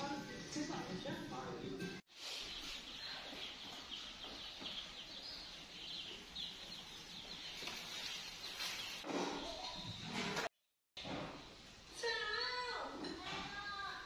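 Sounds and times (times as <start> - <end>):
birds chirping: 2.1 - 10.4.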